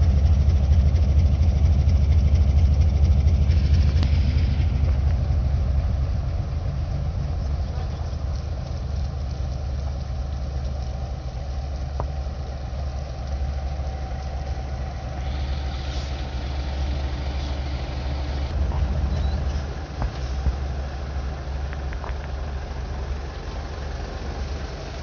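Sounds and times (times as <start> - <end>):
diesel truck engines rumbling: 0.0 - 25.0
hiss: 15.1 - 18.4.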